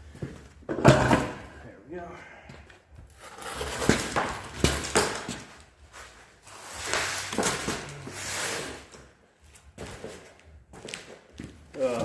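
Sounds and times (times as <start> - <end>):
metal clunks and knocks: 0.7 - 1.6.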